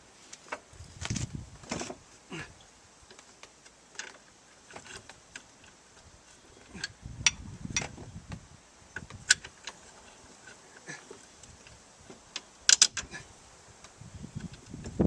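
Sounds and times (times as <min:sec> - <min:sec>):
metallic clicks of bolts and tools: 0:12.4 - 0:13.1.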